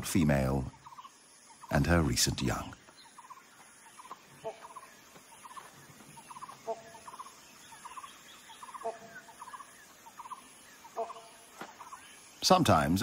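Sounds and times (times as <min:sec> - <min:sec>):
lower bird call: 0:00.0 - 0:12.5.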